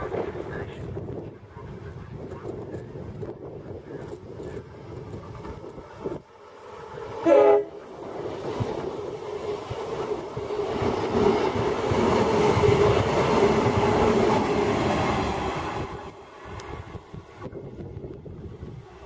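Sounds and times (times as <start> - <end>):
electric train hum: 0.0 - 19.0
train wheels rumbling on rails: 0.0 - 19.0.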